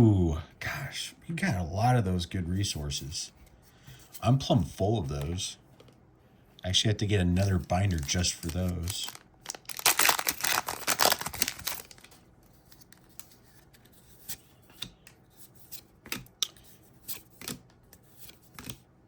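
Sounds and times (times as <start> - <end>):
wrapper crinkling and tearing: 7.4 - 13.4.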